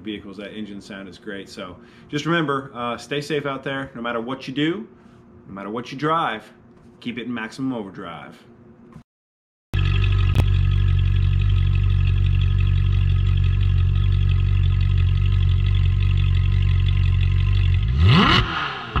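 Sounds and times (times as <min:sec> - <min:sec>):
car engine idling and revving: 0:09.8 - 0:19.0.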